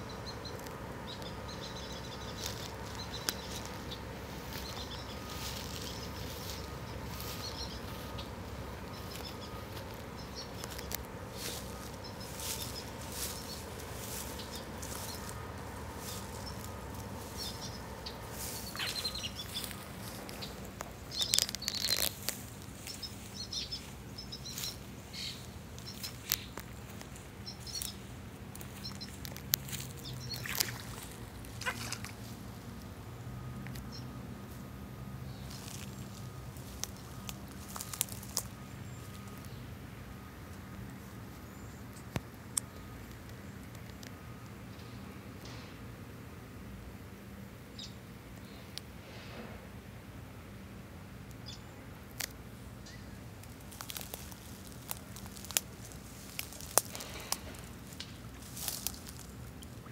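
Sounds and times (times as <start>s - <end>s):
small birds chirping: 0.0s - 32.9s, 35.2s - 39.8s, 47.6s - 48.8s, 51.2s - 59.9s
faint steady hum: 0.0s - 59.9s.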